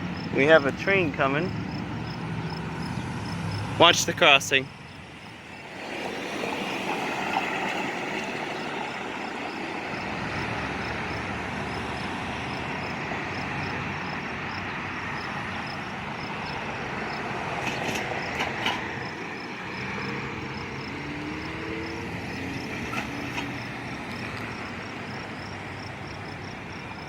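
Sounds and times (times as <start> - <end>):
train wheels rumbling on rail: 5.3 - 27.0.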